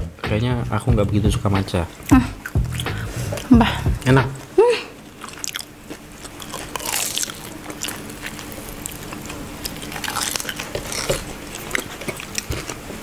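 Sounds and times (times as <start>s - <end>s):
faint steady hum: 0.0s - 13.0s
biting and chewing food: 5.0s - 13.0s
crisp crust clicks: 5.2s - 12.9s.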